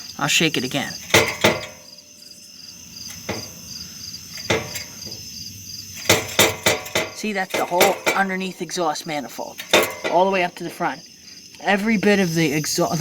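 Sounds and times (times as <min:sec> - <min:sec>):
crickets trilling: 0:00.0 - 0:13.0
exhaust pipe knocking and clanking: 0:00.5 - 0:02.1, 0:02.9 - 0:11.0.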